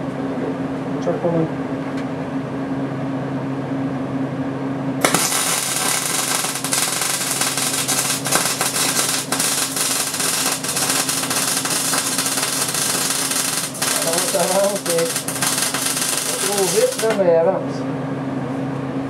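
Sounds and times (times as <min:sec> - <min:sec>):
steady hum: 0:00.0 - 0:19.0
welding arc crackling: 0:05.0 - 0:17.3.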